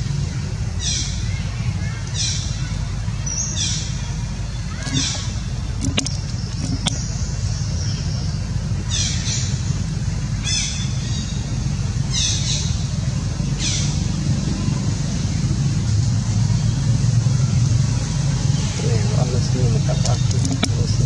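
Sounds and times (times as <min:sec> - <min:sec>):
constant high hiss: 0:00.0 - 0:21.0
steady low rumble: 0:00.0 - 0:21.0
bird calling high descending calls: 0:00.8 - 0:07.2.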